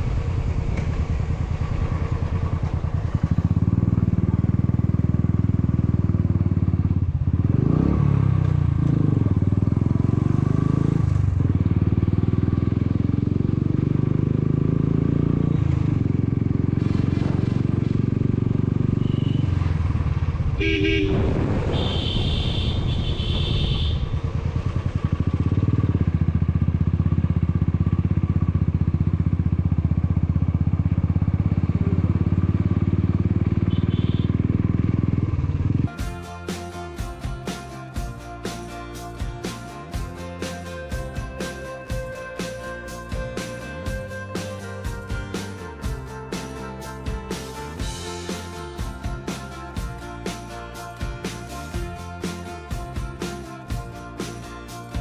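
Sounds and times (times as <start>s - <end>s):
motorcycle engine running: 0.0s - 55.0s
horn honking: 18.9s - 19.6s, 20.6s - 24.2s, 33.6s - 34.6s.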